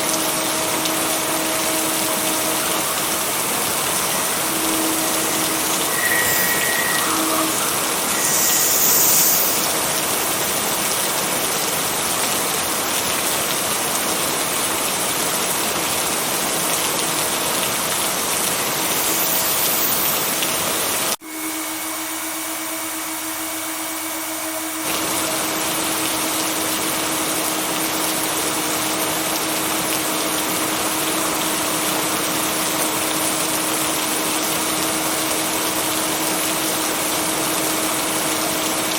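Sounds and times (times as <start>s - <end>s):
heavy rain hiss: 0.0s - 21.2s.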